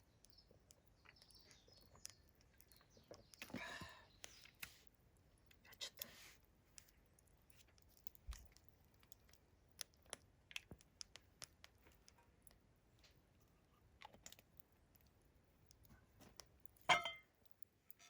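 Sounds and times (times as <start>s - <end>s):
campfire embers crackling: 0.0s - 18.0s.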